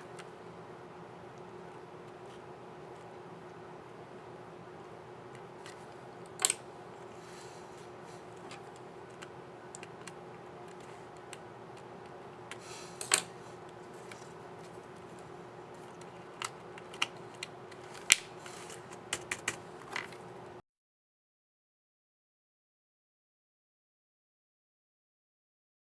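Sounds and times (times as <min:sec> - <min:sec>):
laptop keyboard keys clicking: 0:08.2 - 0:20.4.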